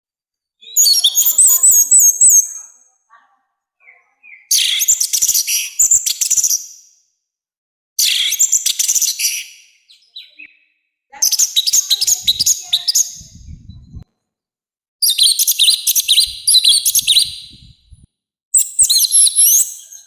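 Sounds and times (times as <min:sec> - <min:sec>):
faint low rumble: 0:13.2 - 0:14.1, 0:17.0 - 0:18.1.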